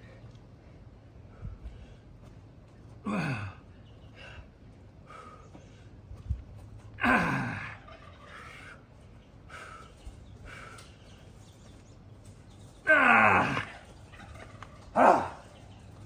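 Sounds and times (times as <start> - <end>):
short breaths: 0.0 - 2.2, 3.1 - 6.0, 9.4 - 11.2
man groaning with effort: 3.0 - 3.6, 7.0 - 7.8, 12.9 - 13.8, 15.0 - 15.5.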